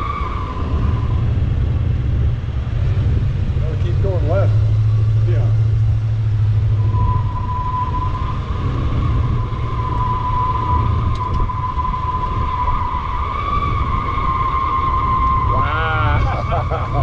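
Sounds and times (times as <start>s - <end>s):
car engine running: 0.6s - 11.4s
high-pitched whine: 3.6s - 17.0s.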